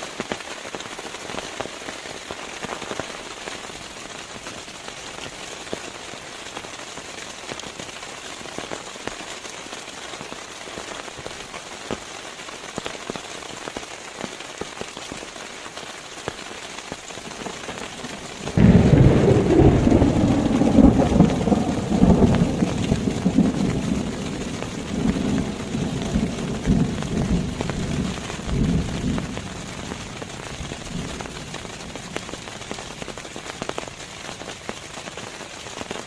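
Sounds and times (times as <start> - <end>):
raindrops ticking: 0.0 - 36.0
steady rain: 0.0 - 36.0
low rumble of thunder: 17.3 - 32.5.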